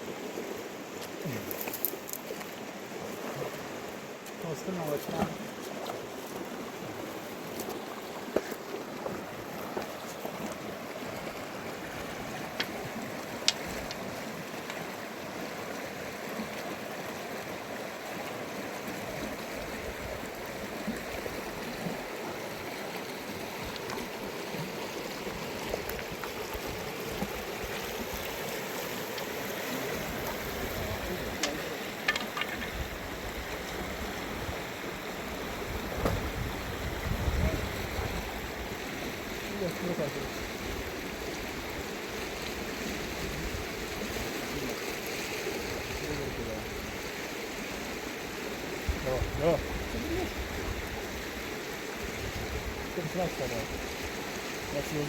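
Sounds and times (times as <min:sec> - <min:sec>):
flowing river water: 0:00.0 - 0:55.0.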